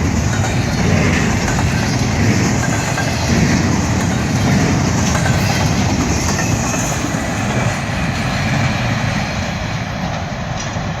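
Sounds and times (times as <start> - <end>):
wheels clicking on rails: 0.0 - 7.8
freight train rumbling past: 0.0 - 11.0.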